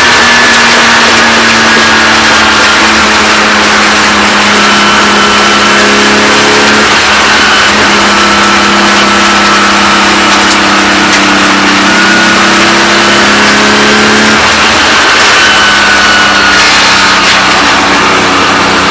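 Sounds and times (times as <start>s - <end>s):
race car engine at high speed: 0.0s - 18.9s
wind and road noise: 0.0s - 18.9s.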